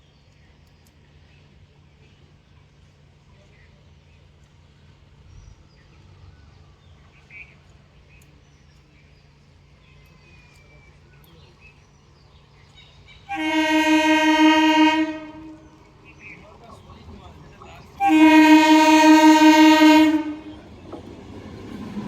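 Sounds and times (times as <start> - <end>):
train horn blast: 13.3 - 15.9, 18.0 - 20.8.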